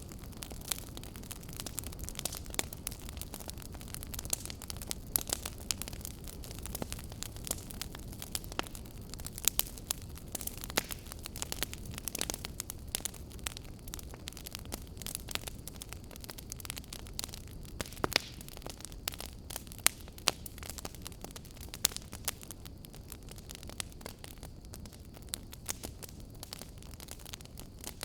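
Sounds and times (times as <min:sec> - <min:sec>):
fire pops and snaps: 0:00.0 - 0:28.0
low steady fire rumble: 0:00.0 - 0:28.0.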